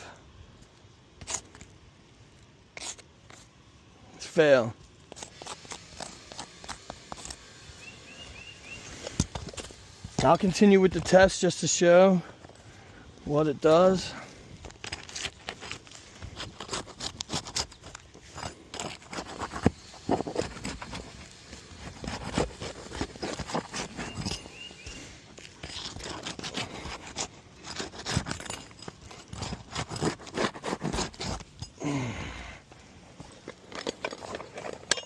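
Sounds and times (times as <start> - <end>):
roof shingles tearing and scraping: 13.6 - 31.6.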